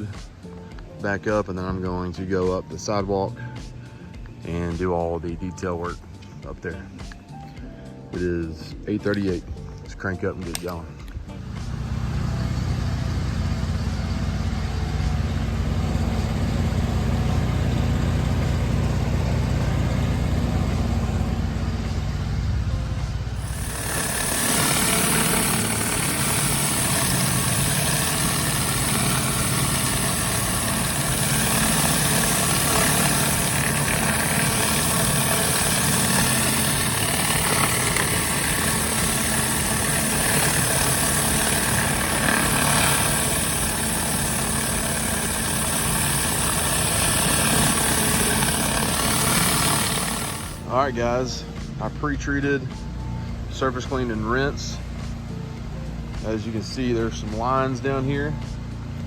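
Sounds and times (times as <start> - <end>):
pressure washer engine running: 11.3 - 51.3
high-pressure water spray hissing: 23.4 - 50.6.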